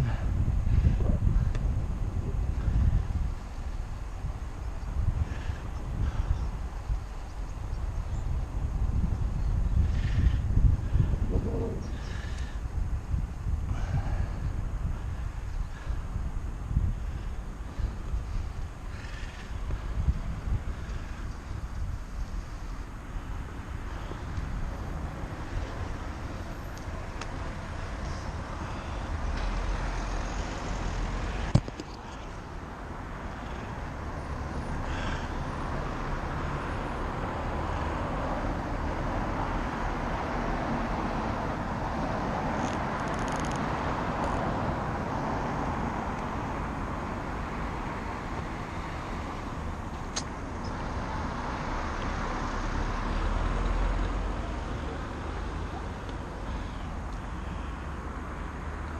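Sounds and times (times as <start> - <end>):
wind on microphone: 0.0 - 29.3
road traffic noise: 0.0 - 58.9.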